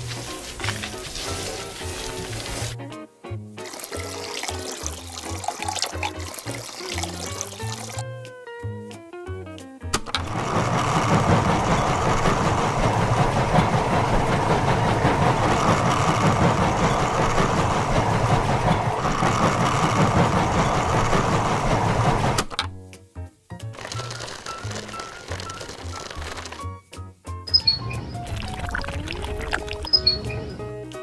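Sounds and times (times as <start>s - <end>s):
small motor rattling: 10.0s - 22.7s, 23.8s - 26.7s.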